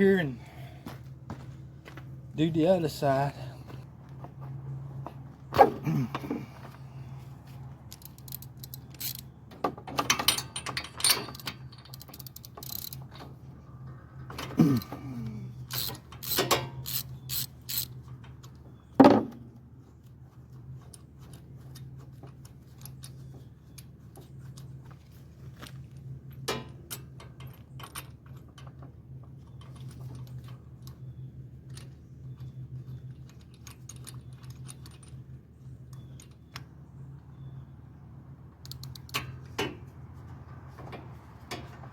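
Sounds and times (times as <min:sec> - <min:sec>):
steady low hum: 0:00.0 - 0:09.5
hand tools clanking on engine parts: 0:07.9 - 0:17.0.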